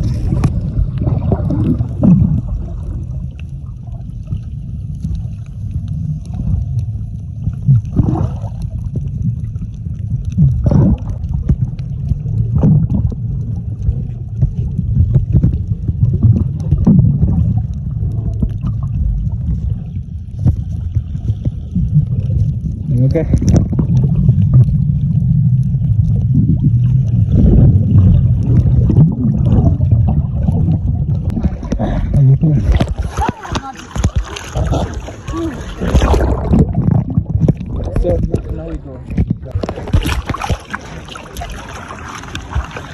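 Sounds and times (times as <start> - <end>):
wind rumbling on microphone: 0.0 - 42.9.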